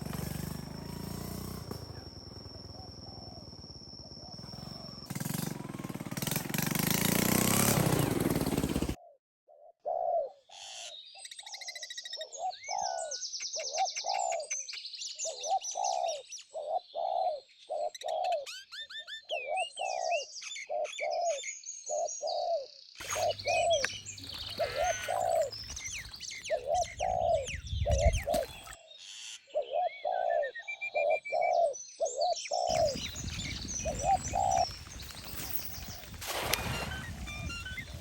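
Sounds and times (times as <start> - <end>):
low cooing bird call: 0.0 - 5.5, 9.0 - 28.8, 29.4 - 38.0
bird chirps and twittering: 10.6 - 38.0.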